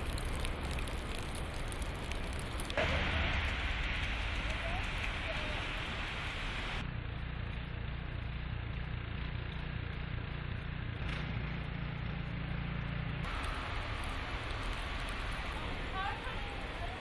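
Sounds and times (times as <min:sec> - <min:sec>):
outdoor background hiss: 0:00.0 - 0:06.8
steady low rumble: 0:00.0 - 0:17.0.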